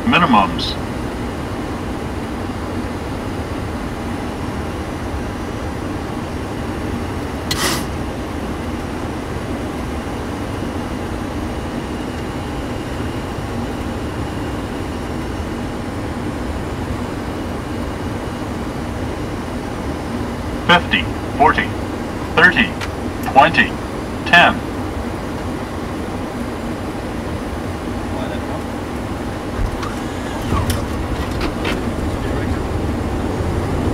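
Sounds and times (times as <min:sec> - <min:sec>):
low engine hum: 0:00.0 - 0:33.9
rush of airflow and air conditioning: 0:00.0 - 0:33.9
brief sharp hiss or click: 0:07.5 - 0:07.9.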